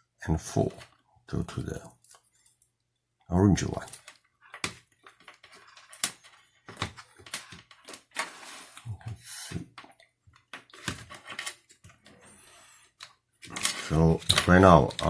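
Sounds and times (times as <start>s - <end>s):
plastic parts clicking and tapping: 3.8s - 8.4s, 13.0s - 15.0s.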